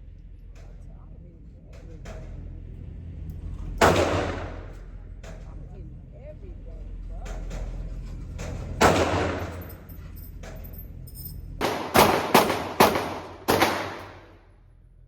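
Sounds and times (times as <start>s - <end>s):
faint gunshots: 3.8s - 4.8s, 8.8s - 9.6s, 11.6s - 14.4s
gunshots with ringing echo: 3.8s - 4.8s, 8.8s - 9.7s, 11.6s - 14.4s.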